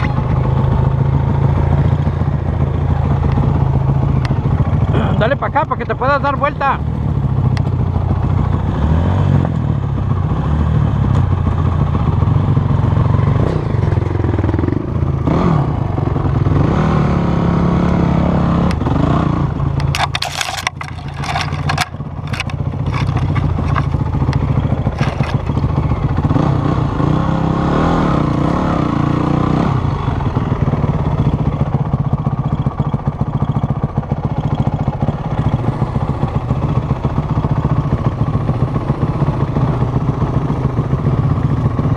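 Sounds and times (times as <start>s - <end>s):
vehicle engine running: 0.0s - 41.9s
sharp clattering and scraping: 19.8s - 25.9s.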